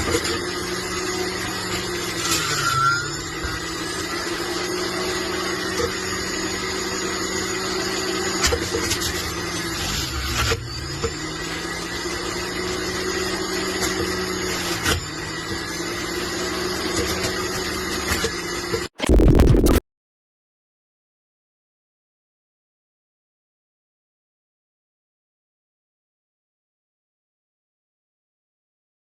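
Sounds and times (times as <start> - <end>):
juice extractor motor humming: 0.0 - 19.2
harsh noise: 19.0 - 19.8.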